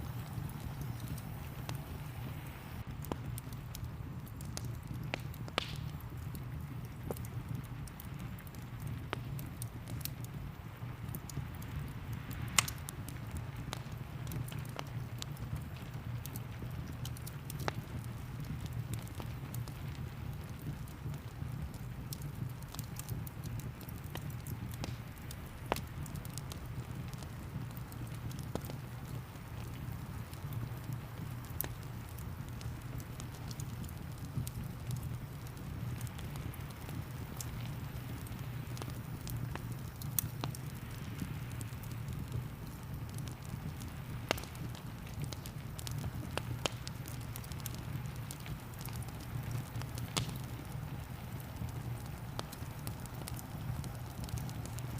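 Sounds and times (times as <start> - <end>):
fireplace crackling: 0.0 - 54.9
sharp fire pops: 0.0 - 54.9
soft hiss of rain: 0.0 - 54.9.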